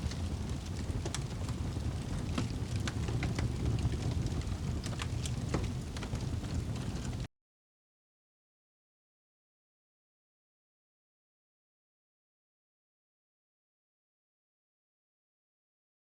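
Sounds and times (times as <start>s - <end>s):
fire crackling and popping: 0.0s - 7.3s.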